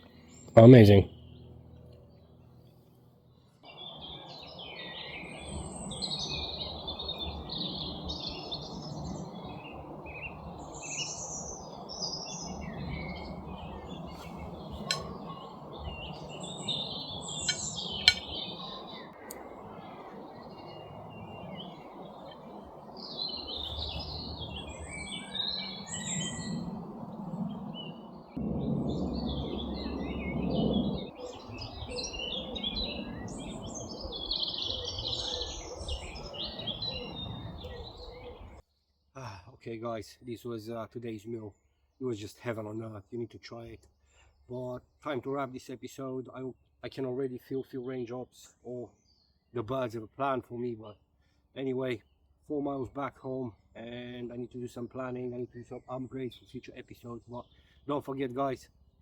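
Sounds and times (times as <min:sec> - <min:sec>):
songbirds chirping and singing: 0:03.6 - 0:38.6, 0:51.8 - 0:58.6
low rushing background: 0:11.6 - 0:34.2.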